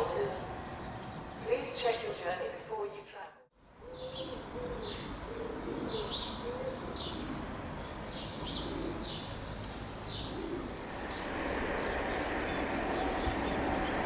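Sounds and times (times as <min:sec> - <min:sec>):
approaching train: 0:00.0 - 0:02.8, 0:03.8 - 0:14.0
bird cooing: 0:03.8 - 0:09.5, 0:10.1 - 0:11.8.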